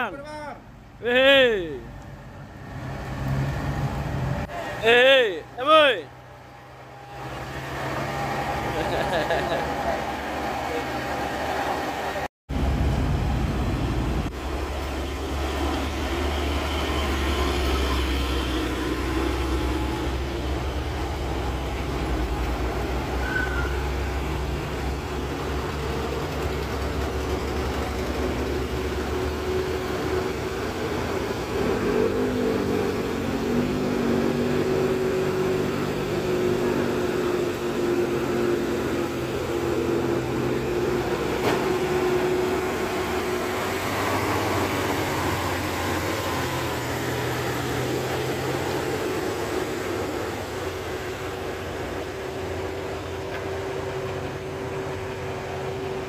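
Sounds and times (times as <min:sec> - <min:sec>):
bus engine drone: 0:00.0 - 0:56.0
road rumble: 0:00.0 - 0:56.0.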